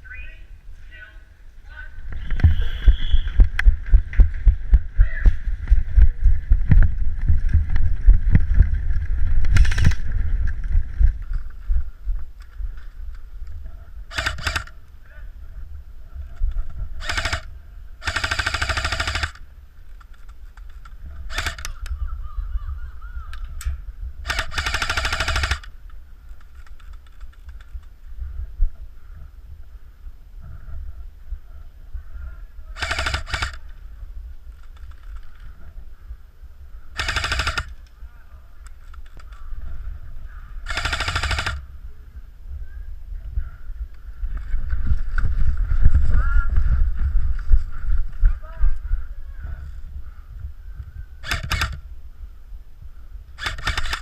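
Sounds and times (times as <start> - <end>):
wind rumble on microphone: 0.0 - 18.1, 19.0 - 54.0
airsoft gun firing bursts: 14.1 - 14.8, 17.0 - 19.4, 21.3 - 21.7, 24.2 - 25.7, 32.8 - 33.6, 37.0 - 37.8, 40.6 - 41.6, 51.2 - 51.8, 53.4 - 54.0.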